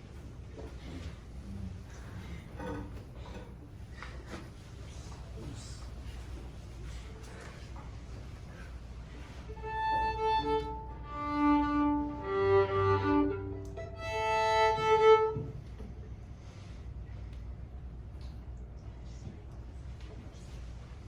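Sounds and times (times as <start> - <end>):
violin bowed notes: 9.6 - 15.7.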